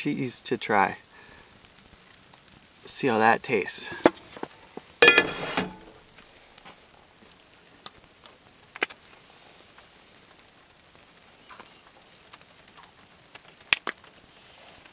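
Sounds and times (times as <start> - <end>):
metal cookware clanking: 5.0 - 5.9.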